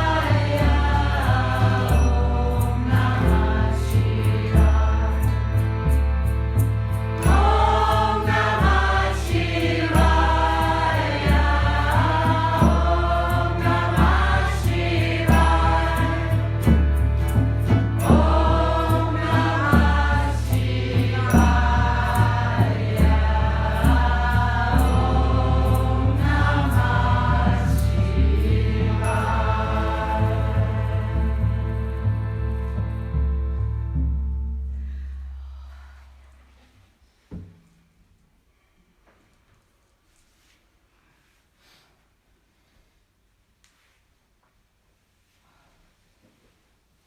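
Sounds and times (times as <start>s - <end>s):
pulsing low bass drone: 0.0s - 35.7s.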